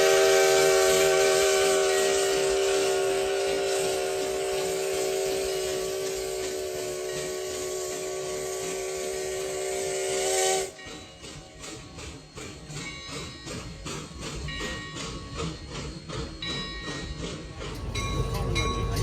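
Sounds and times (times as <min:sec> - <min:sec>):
steam locomotive whistle: 0:00.0 - 0:11.0
steam hissing: 0:00.0 - 0:19.0.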